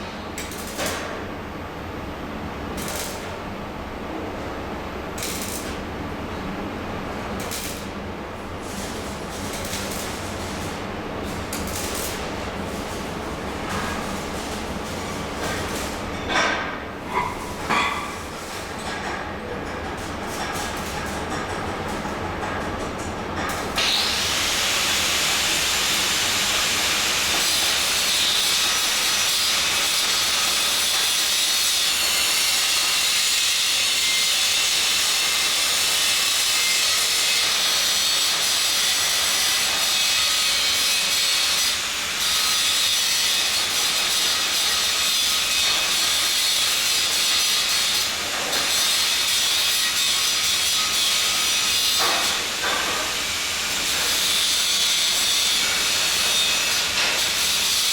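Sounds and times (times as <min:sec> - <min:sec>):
welding equipment hissing: 0:00.4 - 0:01.1, 0:02.8 - 0:03.4, 0:05.2 - 0:05.9, 0:07.2 - 0:16.2, 0:23.6 - 0:31.7.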